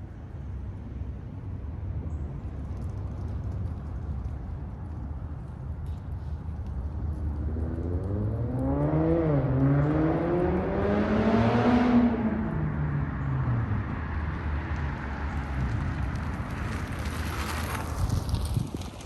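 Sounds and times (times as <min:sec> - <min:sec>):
car engine accelerating: 0:07.4 - 0:16.1.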